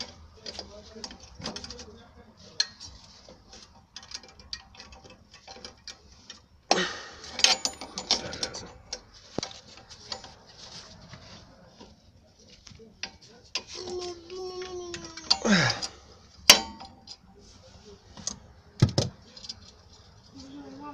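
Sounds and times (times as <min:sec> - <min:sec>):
tools clicking and tapping: 0:00.0 - 0:10.5, 0:12.6 - 0:17.3.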